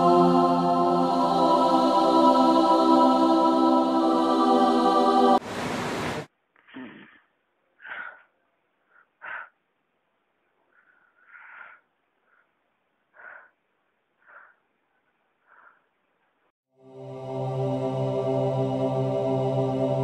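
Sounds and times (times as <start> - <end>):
man gasping breaths: 7.8 - 9.6, 10.7 - 12.5, 13.1 - 13.6, 14.2 - 14.6.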